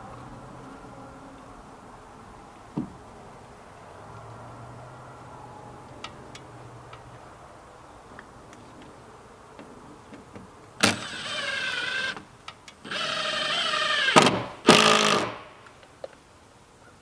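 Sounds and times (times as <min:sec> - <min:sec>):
power tool motor whine: 0:10.8 - 0:12.2, 0:12.8 - 0:15.6.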